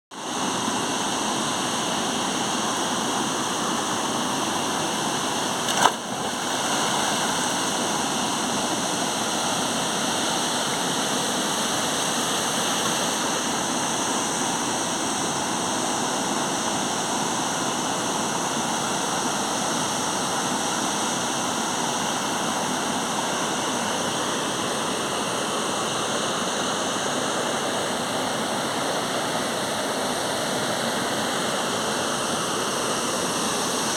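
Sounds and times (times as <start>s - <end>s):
waterfall roaring: 0.4s - 17.8s.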